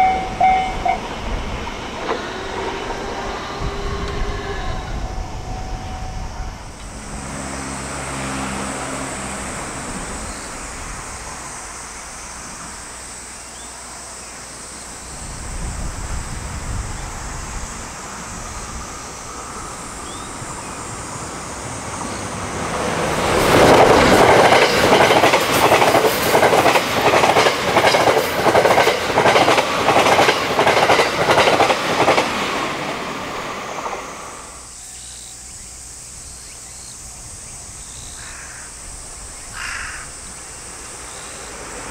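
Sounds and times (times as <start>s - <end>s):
wheels clickety-clack over rail joints: 0.0s - 4.5s, 18.0s - 34.2s
electric train passing at speed: 0.0s - 41.9s.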